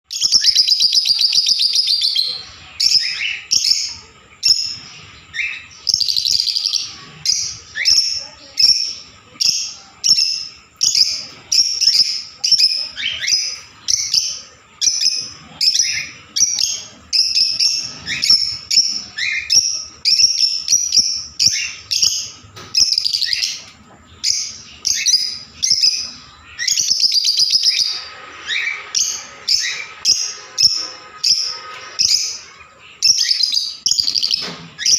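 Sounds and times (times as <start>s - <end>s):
lovebirds chirping: 0.1s - 34.9s.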